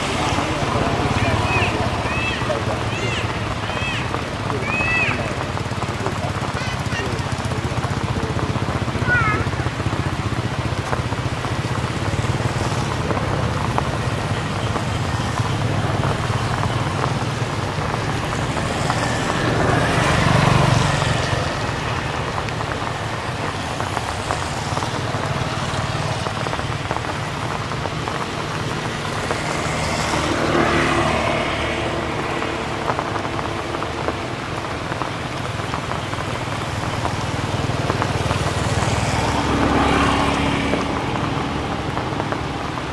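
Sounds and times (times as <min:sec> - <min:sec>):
faint voices: 0:00.0 - 0:42.9
steady rain: 0:00.0 - 0:42.9
vehicles passing on road: 0:00.0 - 0:42.9.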